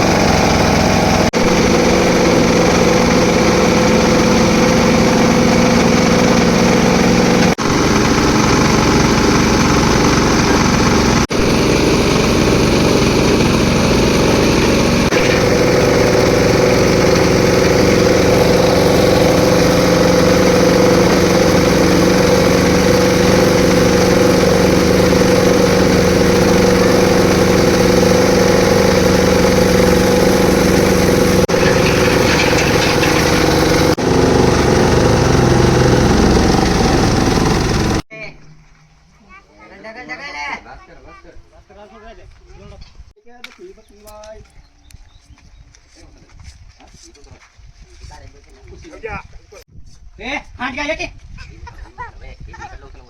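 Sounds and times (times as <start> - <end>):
concrete mixer engine running: 0.0 - 38.1.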